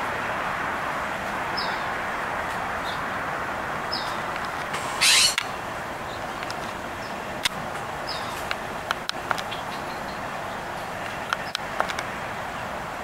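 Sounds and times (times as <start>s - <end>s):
steady background noise: 0.0s - 13.0s
bird high chirps: 4.8s - 5.5s.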